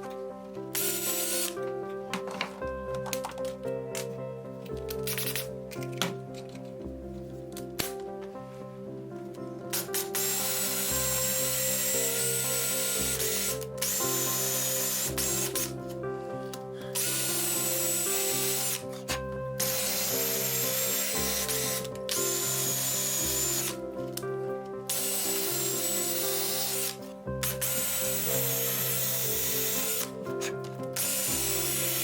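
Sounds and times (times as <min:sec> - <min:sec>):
background music: 0:00.0 - 0:32.0
power drill boring wood: 0:00.7 - 0:01.6, 0:10.2 - 0:15.7, 0:17.0 - 0:18.8, 0:19.6 - 0:23.8, 0:24.9 - 0:30.1, 0:31.0 - 0:32.0.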